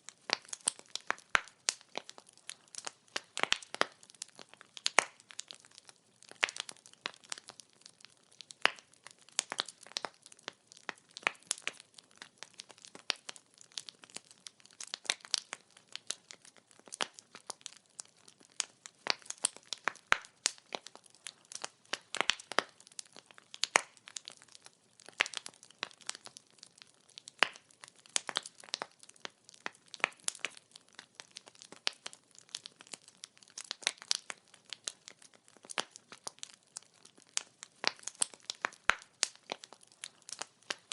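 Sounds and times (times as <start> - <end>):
firewood crackling and popping: 0.0 - 40.9.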